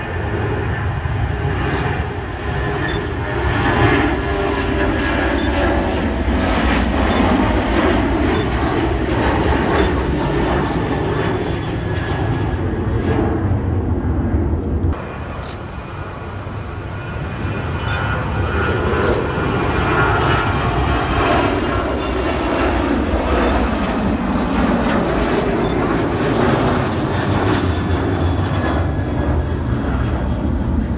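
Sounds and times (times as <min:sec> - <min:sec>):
jet engines roaring: 0:00.0 - 0:30.9
faint clicks: 0:01.7 - 0:02.4, 0:04.0 - 0:05.2, 0:06.4 - 0:07.0, 0:08.6 - 0:09.0, 0:10.6 - 0:11.1, 0:14.6 - 0:15.8, 0:19.0 - 0:19.4, 0:20.6 - 0:25.7.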